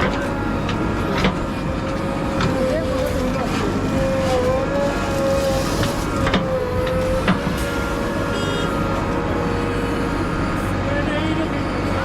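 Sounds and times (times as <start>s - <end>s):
diesel engine running: 0.0s - 12.0s
wavering whine: 0.0s - 12.0s.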